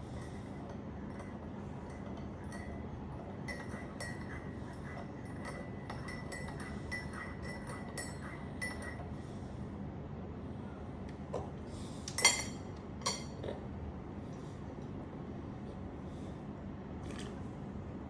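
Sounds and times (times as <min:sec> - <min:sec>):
steady low hum: 0:00.0 - 0:18.0
cutlery clinking on crockery: 0:12.2 - 0:13.4.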